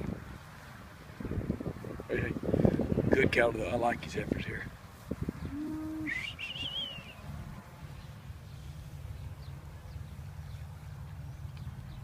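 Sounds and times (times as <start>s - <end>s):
bird rising whistle: 5.5s - 7.2s.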